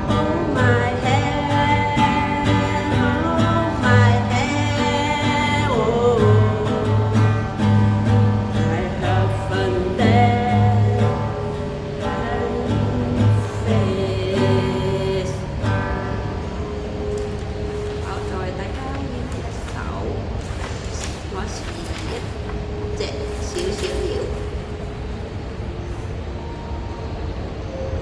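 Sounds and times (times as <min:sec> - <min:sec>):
person singing: 0:00.0 - 0:16.4
acoustic guitar: 0:00.0 - 0:28.0.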